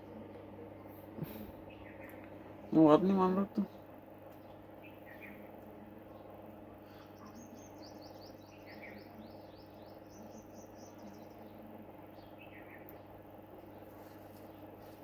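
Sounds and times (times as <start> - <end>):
steady low hum: 0.0 - 15.0
small bird chirping: 3.6 - 5.5, 6.1 - 15.0.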